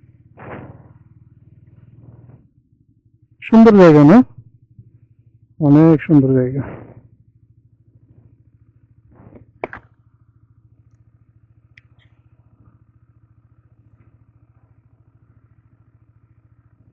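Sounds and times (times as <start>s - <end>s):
motorcycle engine idling: 0.0s - 16.9s
sharp thud: 0.3s - 1.2s, 1.8s - 2.4s, 9.1s - 9.9s
short clatter: 0.3s - 2.5s, 9.1s - 10.0s.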